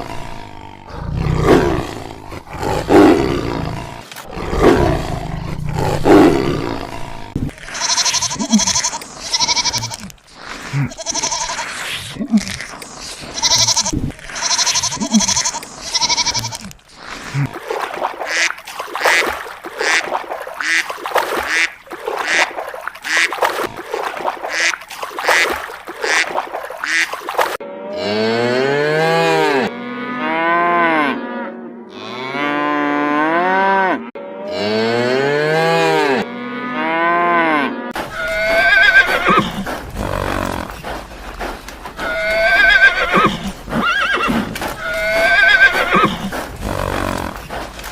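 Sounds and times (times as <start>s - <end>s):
cow mooing: 27.6s - 38.6s
rapid short animal pulses: 39.4s - 42.4s, 46.0s - 47.9s.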